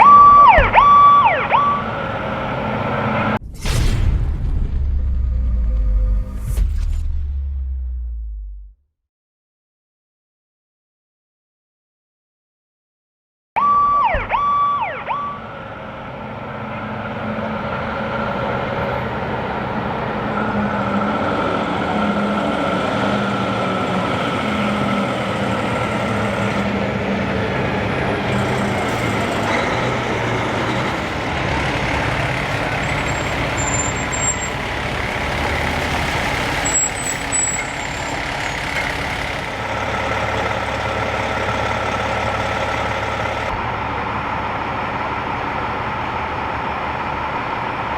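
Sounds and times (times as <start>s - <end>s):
diesel truck engines running: 0.0s - 3.4s, 13.8s - 47.9s.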